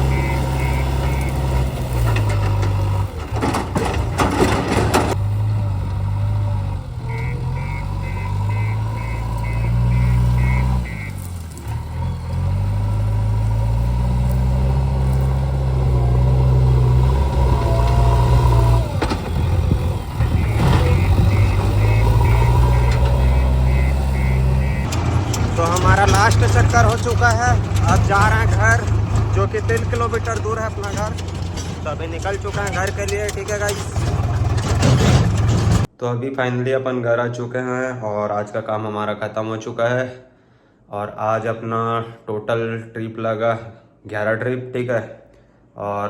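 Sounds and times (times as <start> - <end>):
reversing alarm beeping: 0.0 - 1.8, 7.0 - 11.2, 17.4 - 25.0
diesel engine working: 0.0 - 35.9.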